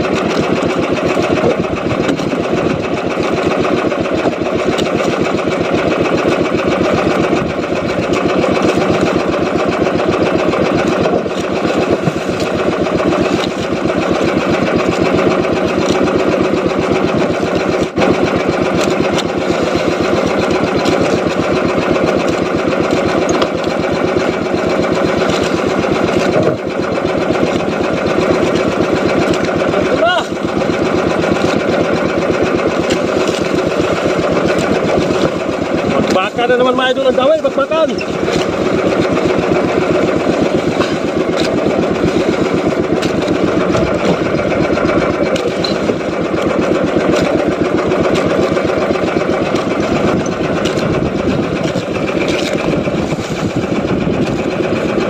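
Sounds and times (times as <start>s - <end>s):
small boat engine putter: 0.0s - 55.0s.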